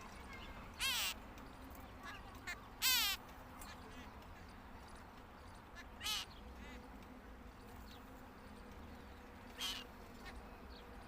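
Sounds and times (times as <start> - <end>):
babblers calling harshly: 0.7 - 1.2, 2.0 - 4.1, 5.7 - 6.8, 9.5 - 10.4.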